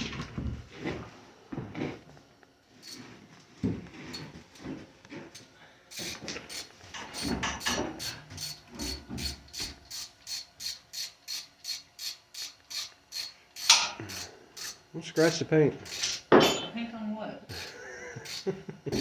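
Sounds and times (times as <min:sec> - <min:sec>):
ratchet wrench clicking: 0:02.8 - 0:03.1, 0:05.3 - 0:16.6, 0:17.5 - 0:19.0.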